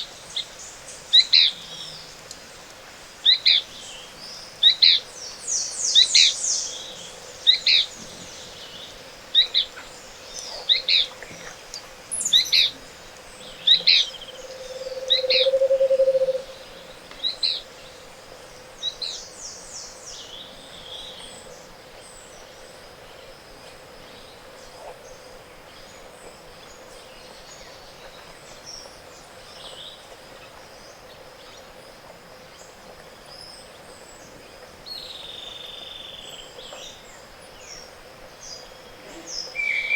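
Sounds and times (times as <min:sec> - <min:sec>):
distant bird calls: 0:05.6 - 0:17.8, 0:39.0 - 0:39.9
low rolling hoot series: 0:13.5 - 0:17.1
thin steady high tone: 0:13.6 - 0:17.0
fast high bird trills: 0:13.8 - 0:16.8.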